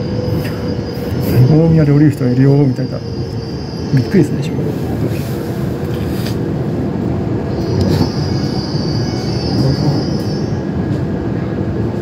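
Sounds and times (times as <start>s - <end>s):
train rumbling: 0.0s - 12.0s
high-pitched brake squeal: 7.5s - 10.7s.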